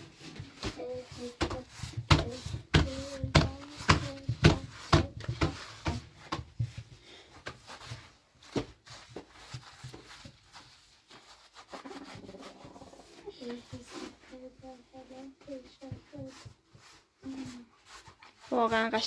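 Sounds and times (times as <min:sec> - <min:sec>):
sharp hard taps and knocks: 0:00.6 - 0:06.8.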